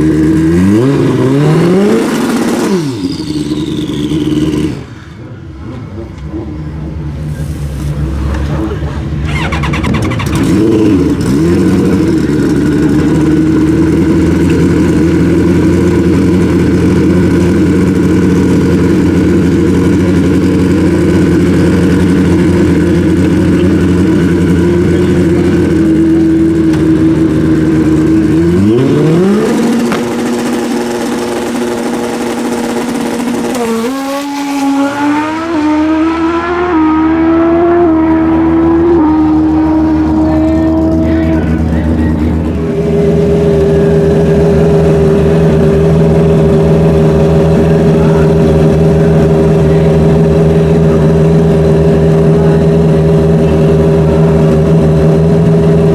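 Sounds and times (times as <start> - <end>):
motorcycle engines revving high: 0.0 - 55.9.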